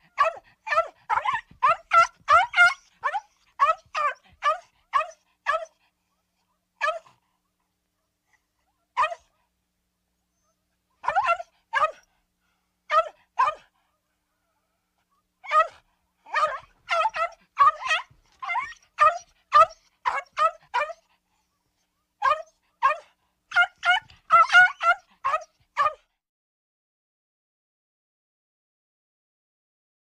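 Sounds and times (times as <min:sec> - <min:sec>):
small dog yapping: 0:00.0 - 0:05.8, 0:06.8 - 0:07.2, 0:09.0 - 0:09.3, 0:11.0 - 0:12.0, 0:12.9 - 0:13.7, 0:15.4 - 0:21.0, 0:22.2 - 0:26.0.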